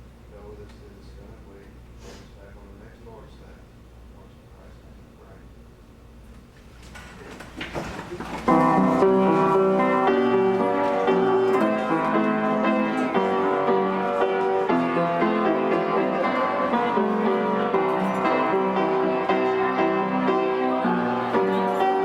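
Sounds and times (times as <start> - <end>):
slow piano chords: 7.8 - 22.0.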